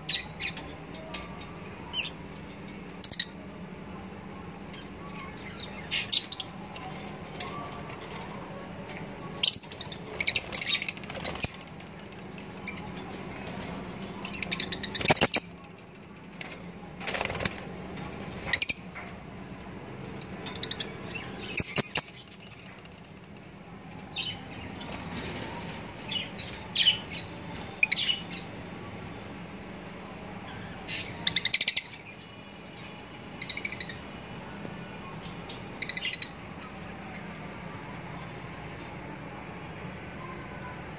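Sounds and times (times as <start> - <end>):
high bird chirps: 33.3 - 34.2, 35.1 - 36.8.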